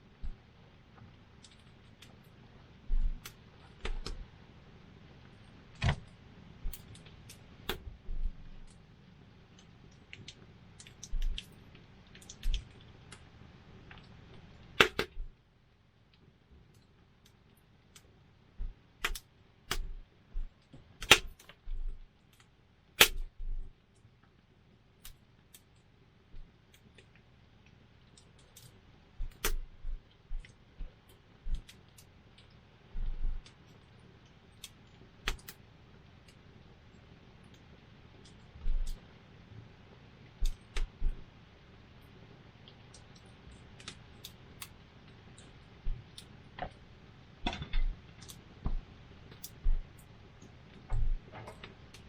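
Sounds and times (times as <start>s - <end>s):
low steady rumble: 0.0s - 25.2s, 26.1s - 52.0s
campfire crackling: 5.0s - 15.3s
low thuds: 49.6s - 50.0s, 50.9s - 51.3s.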